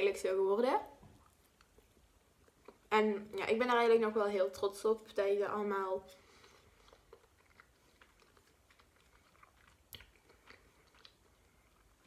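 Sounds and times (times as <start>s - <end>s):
close-mouthed chewing: 6.2s - 12.0s
wet mouth clicks: 7.0s - 11.3s.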